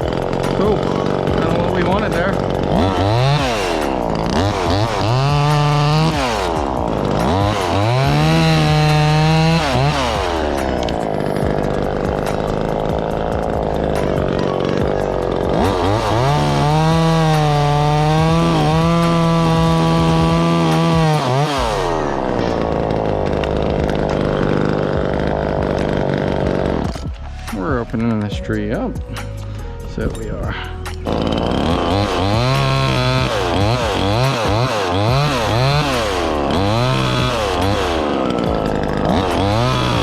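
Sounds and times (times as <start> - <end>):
chainsaw revving and idling: 0.0 - 40.0.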